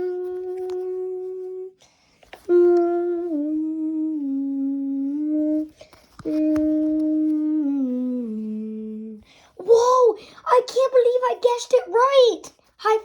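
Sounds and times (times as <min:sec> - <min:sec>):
person humming a slow tune: 0:00.0 - 0:01.8, 0:02.4 - 0:09.3.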